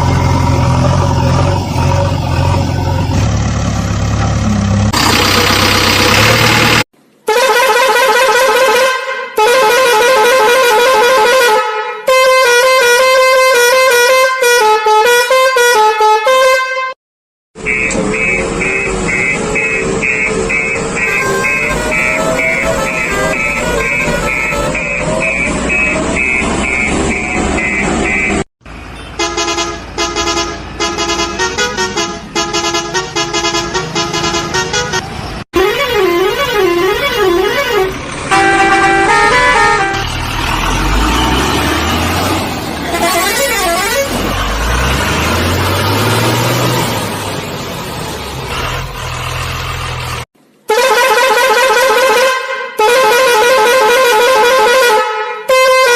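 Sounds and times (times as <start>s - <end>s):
buzzy vehicle horn honking: 7.3s - 17.0s, 17.6s - 28.4s, 29.0s - 40.2s, 42.8s - 44.2s, 50.7s - 55.9s
regular beeping: 17.6s - 28.5s.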